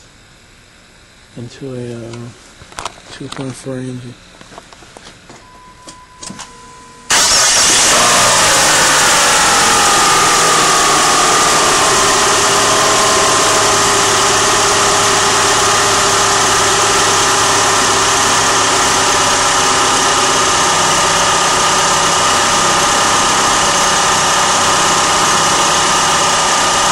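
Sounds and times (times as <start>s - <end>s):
car engine starting and idling: 7.1s - 26.9s.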